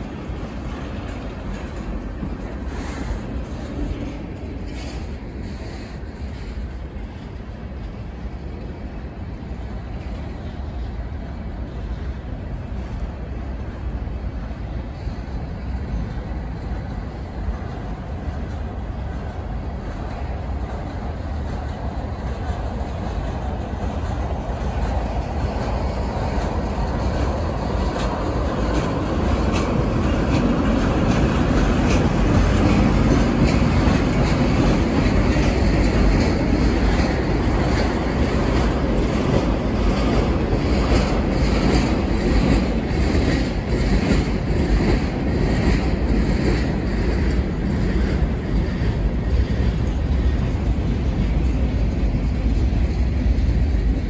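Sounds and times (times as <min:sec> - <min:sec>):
train wheels rumbling on rails: 0:00.0 - 0:54.0
wheels clicking over rail joints: 0:00.0 - 0:54.0.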